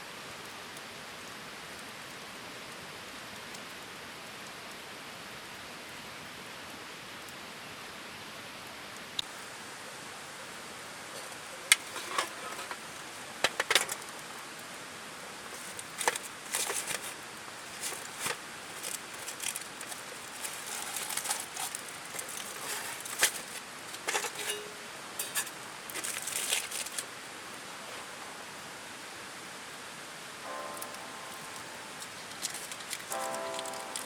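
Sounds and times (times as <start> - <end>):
steady hiss: 0.0 - 34.0
rustling crinkling handling noise: 11.1 - 14.7, 15.3 - 27.2, 30.6 - 34.0.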